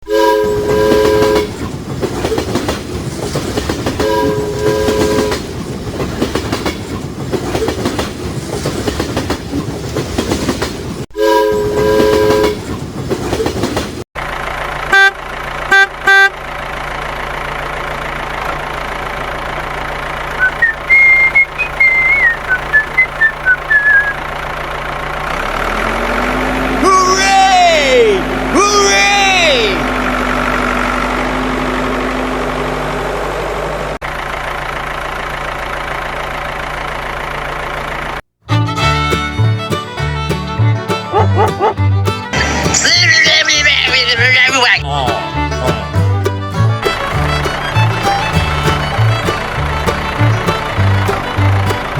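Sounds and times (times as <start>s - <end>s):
short horn toots: 0.0s - 1.6s, 4.0s - 5.4s, 14.9s - 16.4s
train horn blasts: 0.0s - 1.6s, 4.0s - 5.5s, 11.2s - 12.7s, 14.8s - 16.4s
train rumbling on rails: 0.0s - 15.7s, 16.4s - 26.9s, 29.8s - 51.9s.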